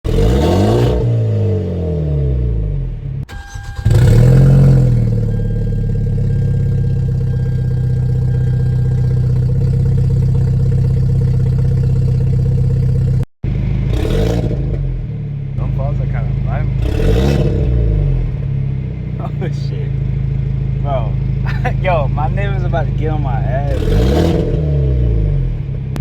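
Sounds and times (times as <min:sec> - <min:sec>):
car engine revving and idling: 0:00.1 - 0:26.0.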